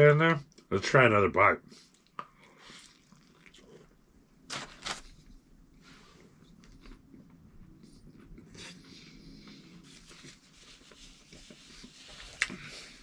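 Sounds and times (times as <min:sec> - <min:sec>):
chewing crunchy sandwich: 0:02.0 - 0:05.2.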